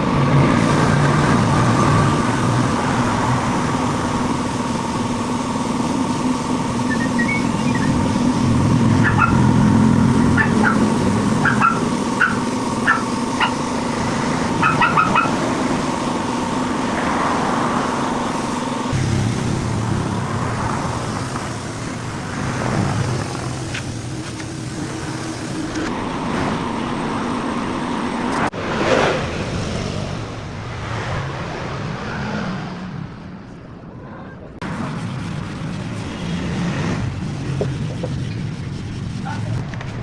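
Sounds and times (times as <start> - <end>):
vehicle engine humming: 0.0 - 28.6, 29.3 - 40.0
short high chirps: 6.8 - 8.1.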